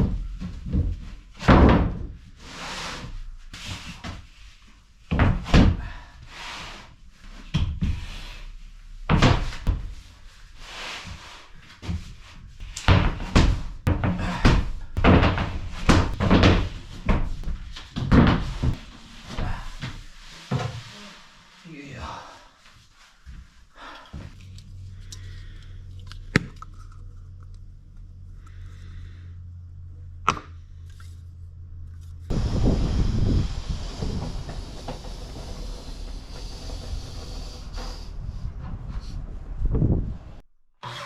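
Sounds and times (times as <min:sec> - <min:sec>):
building work knocks and thumps: 0:00.0 - 0:02.4, 0:03.0 - 0:10.2, 0:11.0 - 0:21.0.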